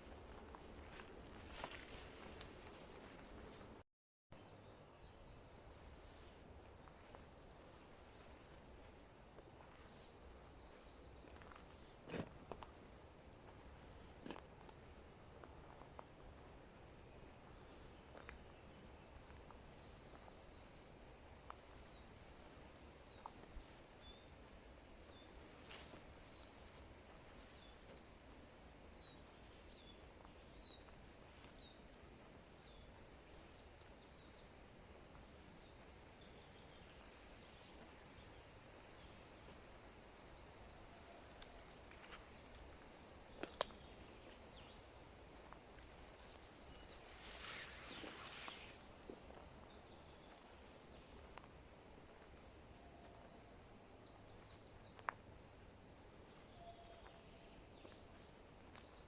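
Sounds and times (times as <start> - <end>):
small birds chirping: 17.0 - 34.6, 35.2 - 51.7, 52.3 - 59.0.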